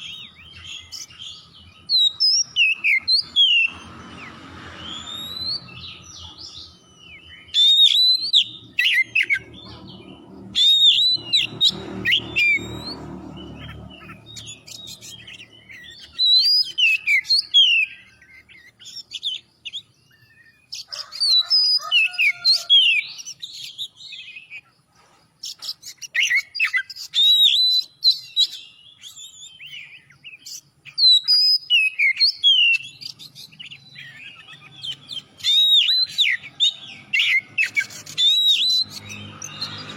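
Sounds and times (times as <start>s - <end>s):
magpie-robin singing: 0.0s - 24.7s, 25.4s - 39.9s.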